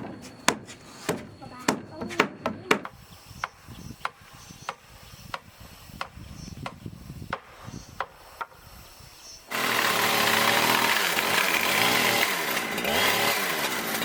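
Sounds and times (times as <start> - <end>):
knocks on wood: 0.0 - 3.0
chainsaw running: 9.5 - 14.0.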